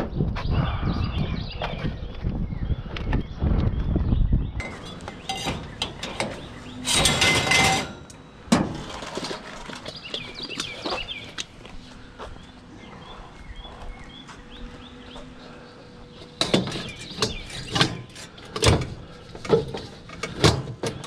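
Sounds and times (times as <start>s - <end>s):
loud scraping: 4.6s - 8.1s
scrap knocking and clinking: 4.6s - 9.5s.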